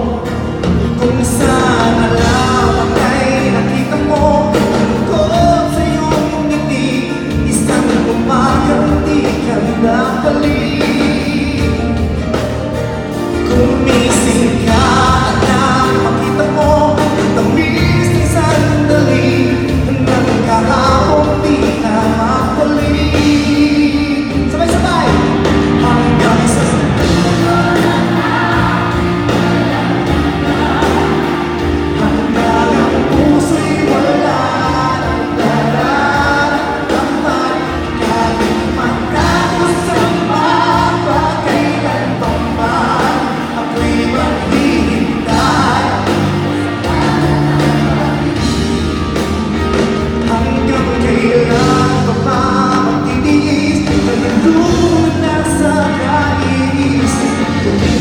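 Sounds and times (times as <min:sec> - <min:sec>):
live pop ballad with band: 0:00.0 - 0:58.0.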